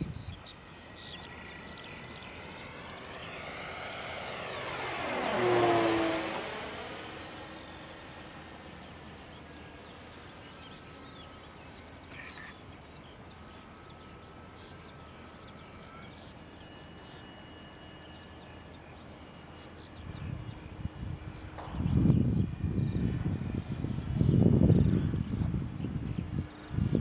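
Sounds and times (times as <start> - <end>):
wind buffeting microphone: 0.0 - 0.6, 20.0 - 27.0
faint steady tones: 0.0 - 27.0
small birds chirping: 7.0 - 26.8.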